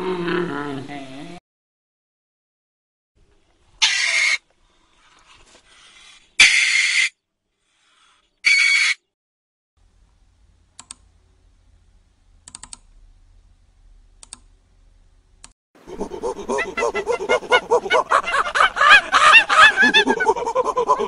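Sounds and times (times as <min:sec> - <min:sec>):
meerkat harsh hissy calls: 0:03.8 - 0:04.4, 0:06.4 - 0:07.1.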